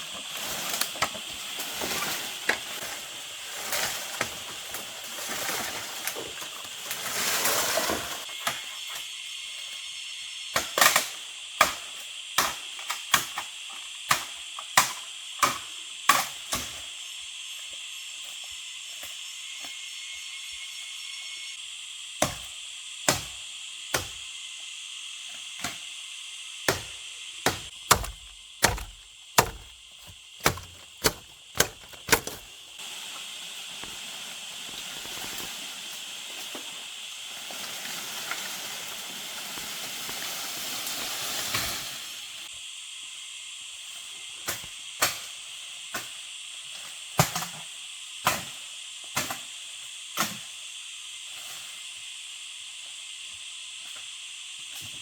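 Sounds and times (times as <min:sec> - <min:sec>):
sharp knocks: 0:27.5 - 0:32.5.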